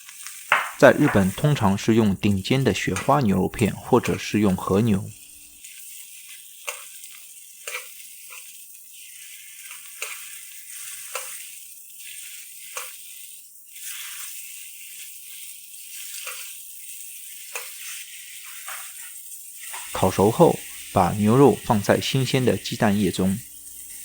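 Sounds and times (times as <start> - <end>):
meat sizzling in a pot: 0.0 - 24.0
fat spattering pops: 0.5 - 1.6.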